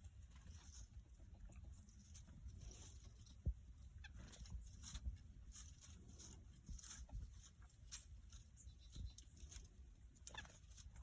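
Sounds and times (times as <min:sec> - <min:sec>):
small birds chirping: 0:06.7 - 0:11.0.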